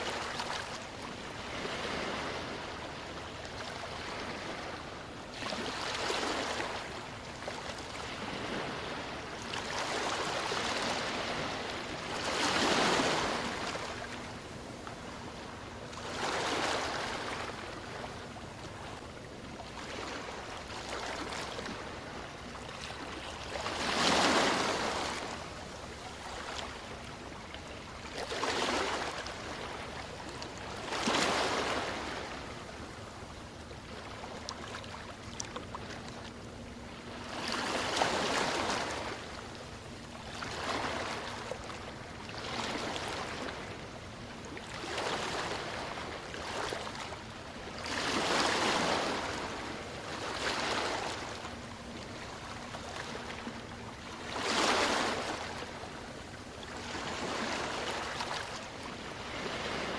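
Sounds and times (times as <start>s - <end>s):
ocean waves washing ashore: 0.0s - 19.0s, 19.7s - 27.6s, 44.7s - 59.9s.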